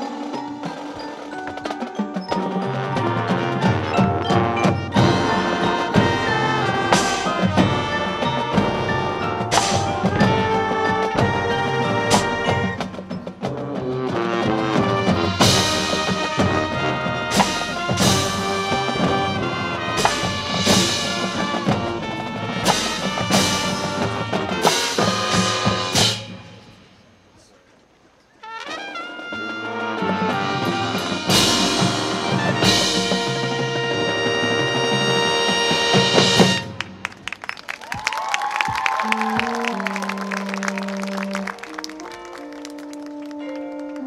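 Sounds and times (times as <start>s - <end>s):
loud accented band hits: 0.0s - 27.2s, 28.6s - 37.2s
marching band playing: 0.0s - 27.5s, 28.4s - 44.0s
brass pitch bends: 39.0s - 44.0s.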